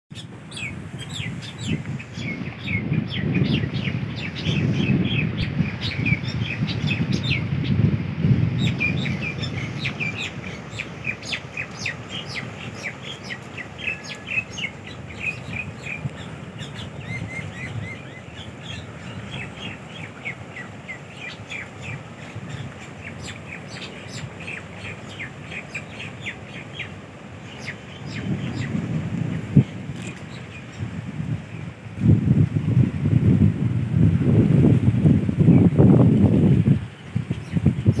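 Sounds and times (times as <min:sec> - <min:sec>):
small birds chirping: 0:00.1 - 0:07.8, 0:08.6 - 0:28.8, 0:37.0 - 0:38.0
low gusty rumble: 0:00.3 - 0:12.7, 0:27.0 - 0:38.0.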